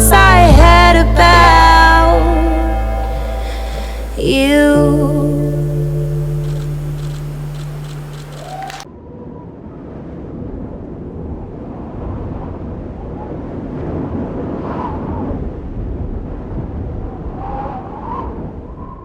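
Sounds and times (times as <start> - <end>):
voices calling out: 0.0 - 8.8.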